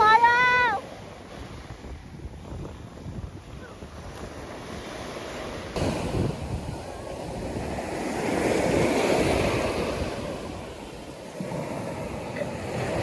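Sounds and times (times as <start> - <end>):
waves breaking on beach: 0.0 - 13.0
wind buffeting microphone: 0.0 - 13.0.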